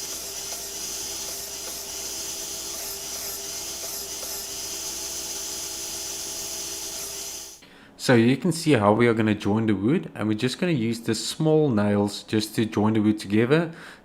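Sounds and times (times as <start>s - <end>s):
power sander on wood: 0.0s - 7.6s.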